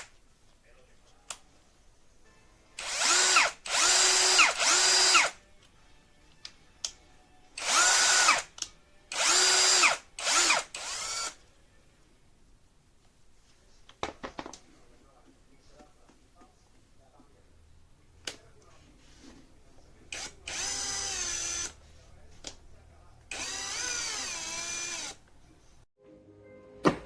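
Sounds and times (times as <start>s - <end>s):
cordless drill motor whining: 2.8s - 5.4s, 7.6s - 11.4s, 20.1s - 21.8s, 23.3s - 25.2s.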